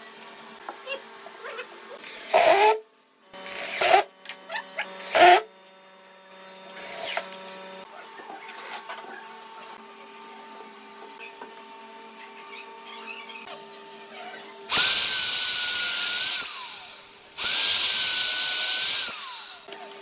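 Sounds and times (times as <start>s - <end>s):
power tool bursts: 2.0s - 2.8s, 3.4s - 4.1s, 5.0s - 5.5s, 14.7s - 19.7s.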